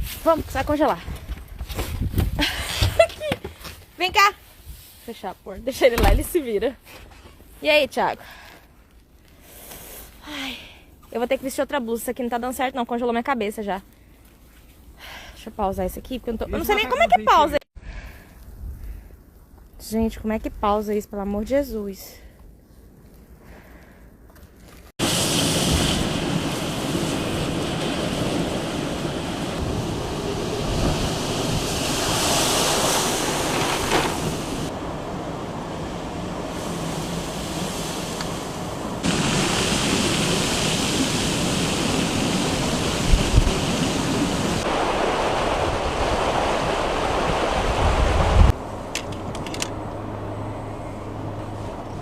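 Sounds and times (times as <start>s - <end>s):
wind rushing over microphone: 0.0s - 2.7s, 25.0s - 49.4s.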